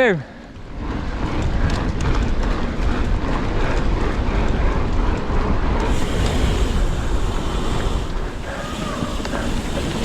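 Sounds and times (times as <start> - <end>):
bike tyres rattling on dirt trail: 0.0 - 10.0
wind buffeting microphone: 0.3 - 10.0.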